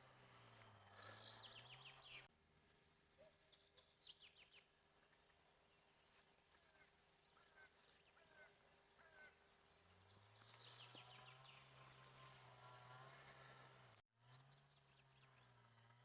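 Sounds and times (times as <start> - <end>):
birds chirping: 0.0 - 4.6, 6.7 - 13.9.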